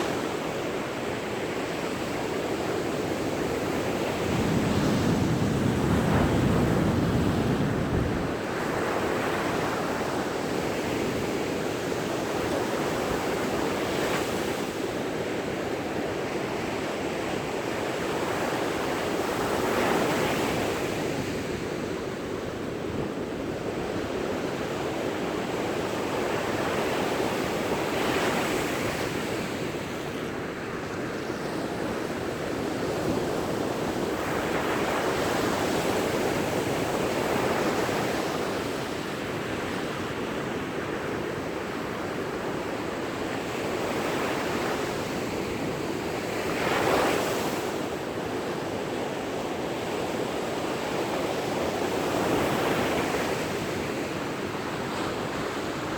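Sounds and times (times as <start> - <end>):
wind on microphone: 2.6 - 11.4.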